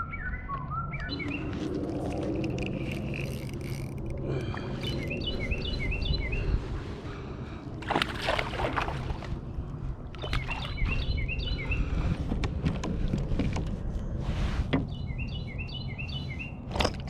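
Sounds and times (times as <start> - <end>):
songbird singing: 0.0 - 6.6, 10.1 - 12.2, 14.7 - 16.6
low rumble of wind and water: 0.0 - 17.0
fish splashing at surface: 7.8 - 9.3.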